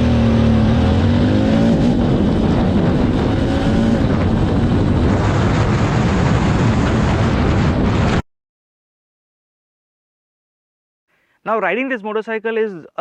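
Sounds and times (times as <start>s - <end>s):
motorcycle engine: 0.0s - 8.2s
road noise: 0.0s - 8.2s
wind noise: 0.0s - 8.2s.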